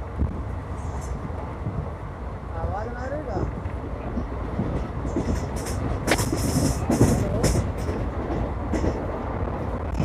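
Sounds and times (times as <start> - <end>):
train rumbling on rails: 0.0 - 10.0
train wheels clattering: 3.4 - 10.0.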